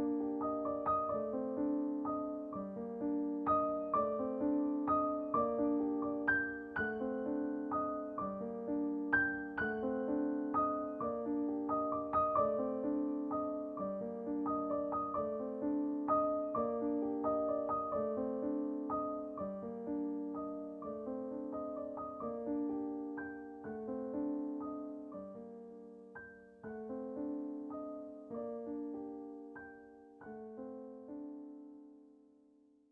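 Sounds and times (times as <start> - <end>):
calm piano music: 0.0 - 32.9.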